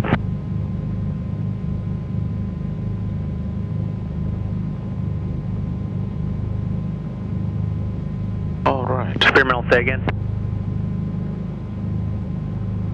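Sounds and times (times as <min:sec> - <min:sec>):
radio click: 0:00.0 - 0:00.2, 0:09.1 - 0:10.2
aircraft piston engines droning: 0:00.0 - 0:12.9.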